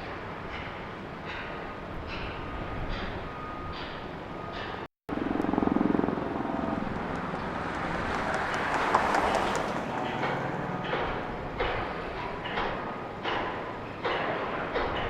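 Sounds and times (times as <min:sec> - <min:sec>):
motor vehicle passing: 0:06.1 - 0:12.4.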